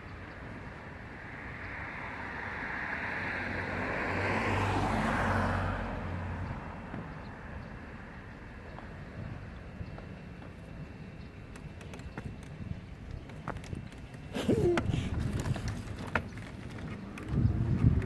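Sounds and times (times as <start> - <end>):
motor vehicle passing: 1.8 - 10.5.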